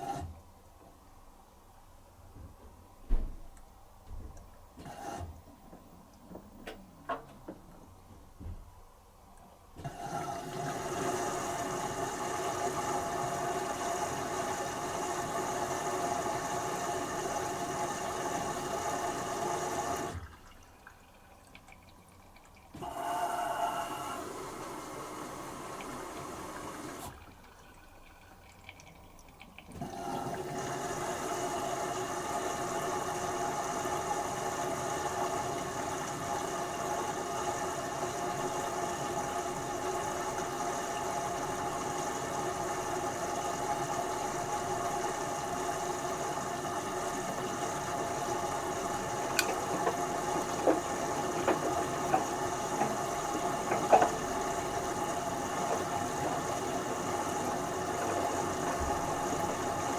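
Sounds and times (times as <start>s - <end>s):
washing machine motor humming: 9.8s - 21.7s, 22.7s - 28.6s, 29.7s - 59.9s
water inflow: 10.0s - 23.1s, 25.4s - 34.5s, 35.2s - 59.9s.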